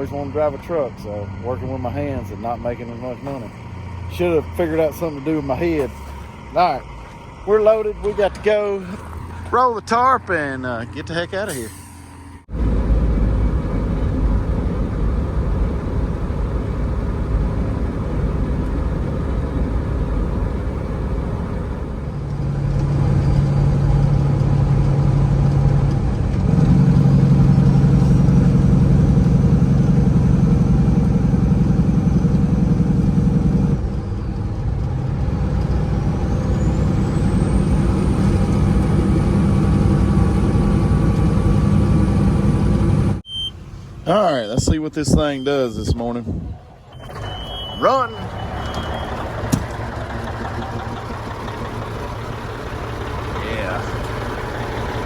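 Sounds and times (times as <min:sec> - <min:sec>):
diesel truck engine running: 0:00.0 - 0:55.0
thin whistle: 0:46.9 - 0:49.2.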